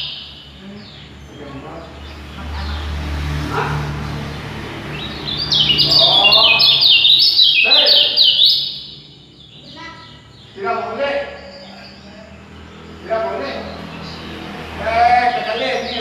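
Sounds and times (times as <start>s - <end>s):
songbird singing: 0.0s - 16.0s.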